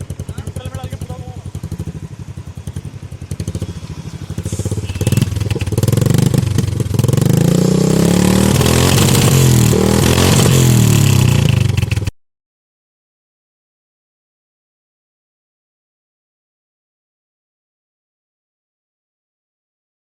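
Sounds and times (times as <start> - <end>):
motorcycle engine revving: 0.0 - 12.1.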